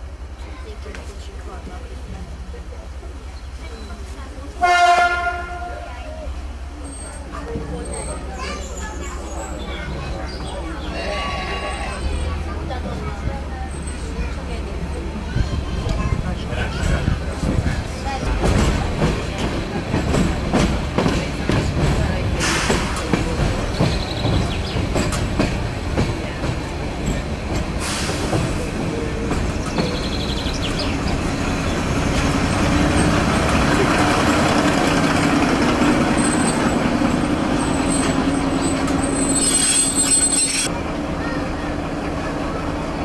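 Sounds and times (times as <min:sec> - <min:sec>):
train rumbling on track: 0:00.0 - 0:43.0
high wheel squeal: 0:37.6 - 0:40.7.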